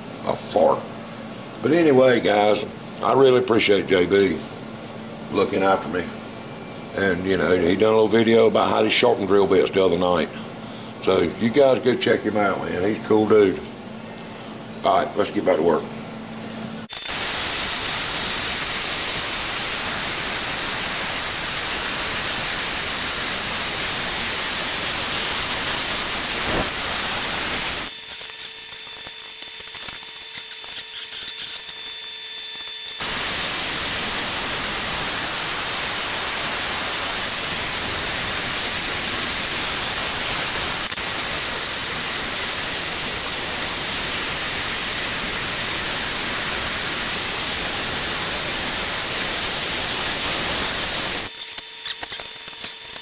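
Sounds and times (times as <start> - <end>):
loud air hiss: 16.9 - 28.7, 32.4 - 51.6.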